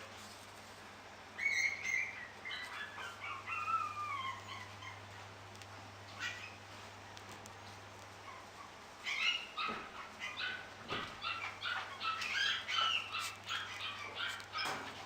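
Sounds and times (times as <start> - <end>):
puppy yipping and whining: 1.4 - 5.2, 6.1 - 6.7, 8.2 - 15.0.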